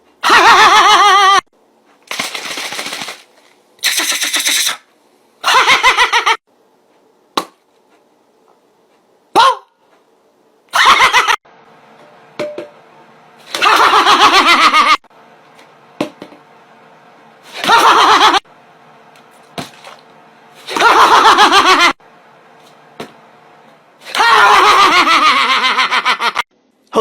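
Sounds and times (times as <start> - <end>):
high-pitched pulsing laughter: 0.2 - 1.5, 5.4 - 6.4, 10.7 - 11.4, 13.5 - 15.1, 17.5 - 18.5, 20.7 - 22.0, 24.1 - 26.5.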